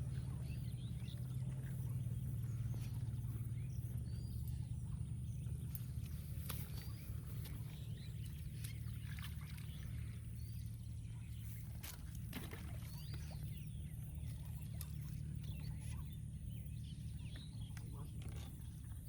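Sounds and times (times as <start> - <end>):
faint bird chirps: 0.0 - 19.0
steady low hum: 0.0 - 19.0.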